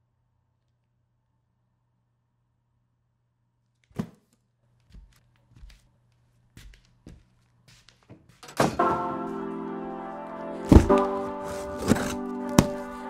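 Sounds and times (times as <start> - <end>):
soft footsteps: 4.6 - 8.4, 10.7 - 13.0
music with sustained chords: 8.8 - 13.0.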